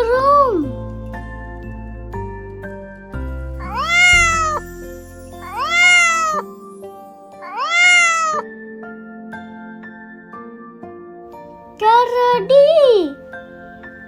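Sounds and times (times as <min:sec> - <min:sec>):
light children's music: 0:00.0 - 0:14.0
cat meowing: 0:03.6 - 0:04.6, 0:05.4 - 0:06.4, 0:07.4 - 0:08.4.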